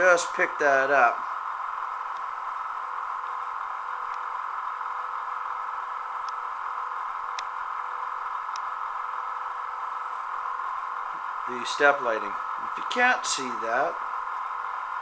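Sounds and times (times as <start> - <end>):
generator sound through small speaker: 0.0 - 15.0
faint ticks: 8.4 - 8.7.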